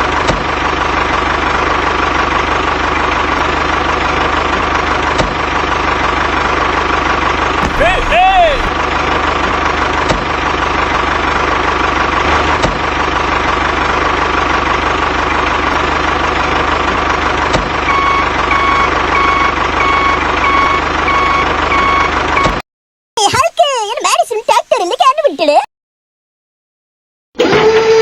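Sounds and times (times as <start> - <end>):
tractor engine idling: 0.0 - 12.2
reversing alarm beeping: 17.9 - 22.6.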